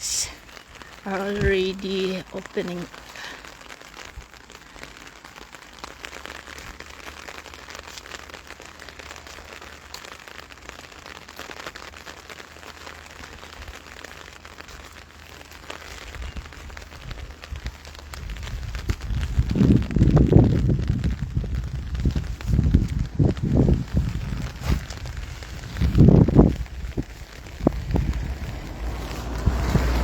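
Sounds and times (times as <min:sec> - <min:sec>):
light rain patter: 0:00.0 - 0:30.0
wind rumble on microphone: 0:15.9 - 0:30.0.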